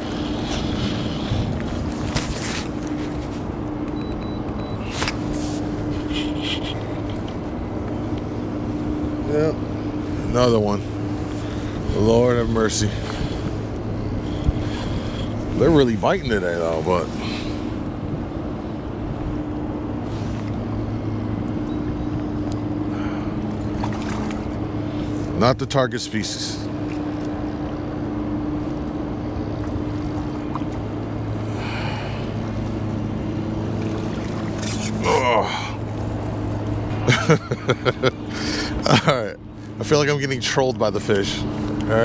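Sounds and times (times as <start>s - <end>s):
boat motor humming: 0.0s - 42.0s.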